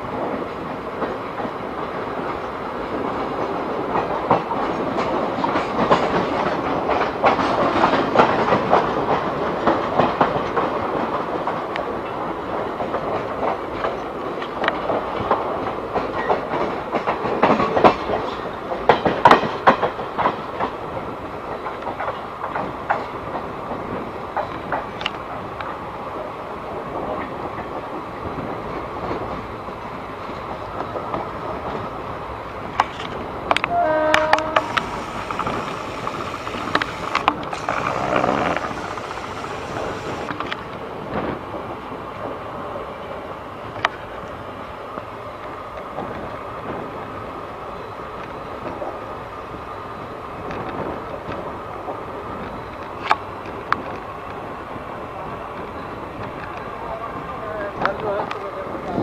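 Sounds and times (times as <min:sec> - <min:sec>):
train wheels rumbling on rails: 0:00.0 - 0:59.0
faint clicks: 0:32.8 - 0:40.6.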